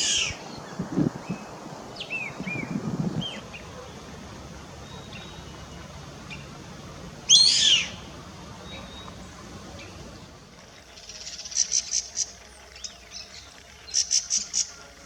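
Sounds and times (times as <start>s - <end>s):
loud harsh bird call: 0.0s - 0.8s, 7.3s - 8.0s.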